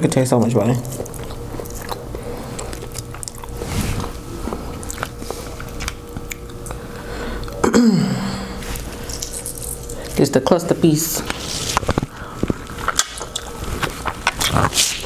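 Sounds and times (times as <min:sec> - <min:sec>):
chewing and biting crab: 0:00.8 - 0:07.6, 0:11.2 - 0:15.0.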